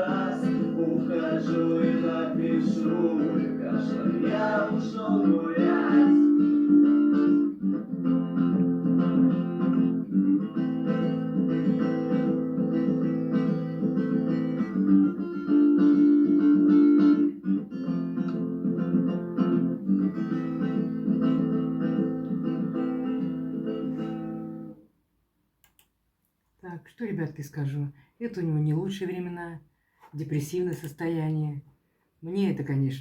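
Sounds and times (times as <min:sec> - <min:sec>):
solo guitar chords: 0:00.0 - 0:24.8.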